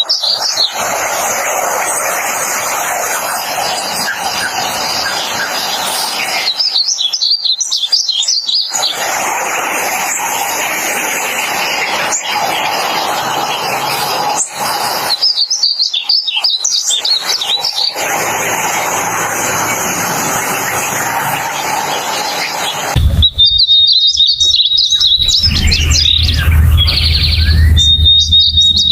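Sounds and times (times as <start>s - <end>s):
hissing noise: 22.9s - 28.9s
bird singing warbling high notes: 23.0s - 28.9s
low hum: 23.0s - 28.9s.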